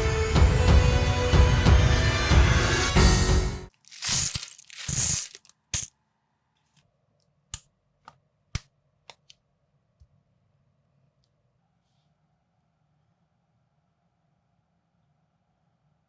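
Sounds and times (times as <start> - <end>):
plastic crinkling rustles: 3.7 - 5.9
plastic bricks clicking together: 3.8 - 5.9.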